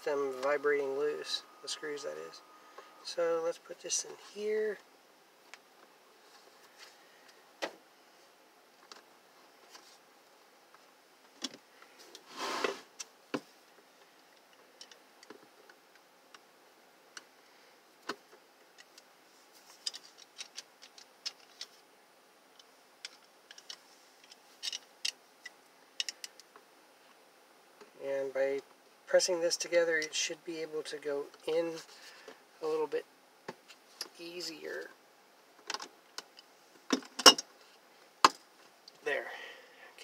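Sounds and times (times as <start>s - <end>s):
light clicks and taps of parts: 14.2s - 16.5s, 18.0s - 21.8s, 22.5s - 26.7s.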